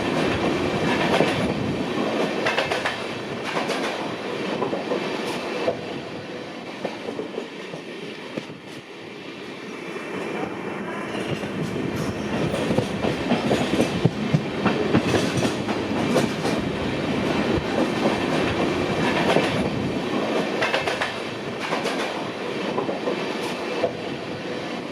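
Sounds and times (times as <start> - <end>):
train wheels clattering: 0.0 - 5.9, 11.0 - 24.0.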